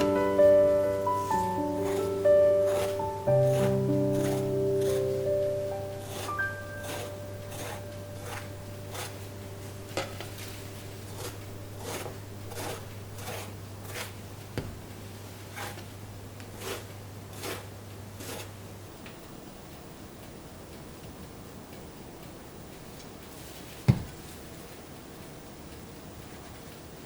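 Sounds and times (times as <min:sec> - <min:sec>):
hand scraping in kitchen: 0:00.0 - 0:14.2, 0:15.3 - 0:15.9, 0:16.6 - 0:18.6
steady low hum: 0:00.0 - 0:27.0.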